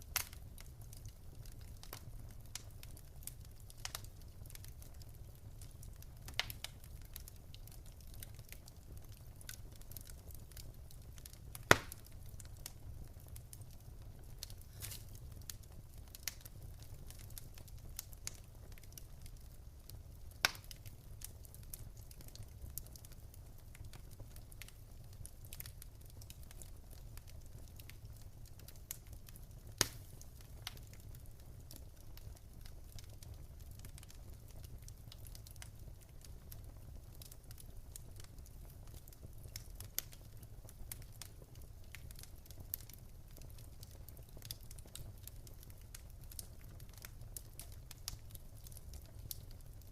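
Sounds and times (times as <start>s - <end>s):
fire rumbling: 0.0s - 49.9s
wood fire crackling: 0.0s - 49.9s
loud fire pops: 11.6s - 12.4s, 29.7s - 31.0s.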